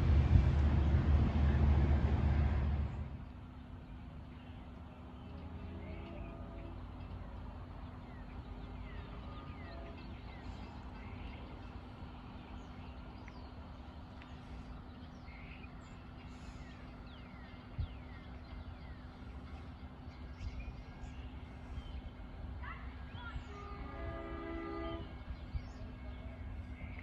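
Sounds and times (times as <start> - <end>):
low hum and rumble: 0.0 - 27.0
birds chirping: 7.8 - 27.0.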